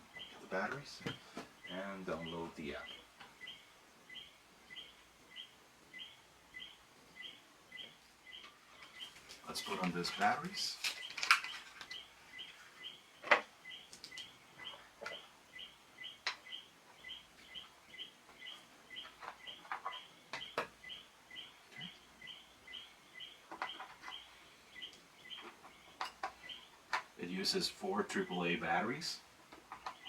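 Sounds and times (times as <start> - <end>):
bird chirping: 0.0 - 30.0
plastic clicks: 9.8 - 12.0.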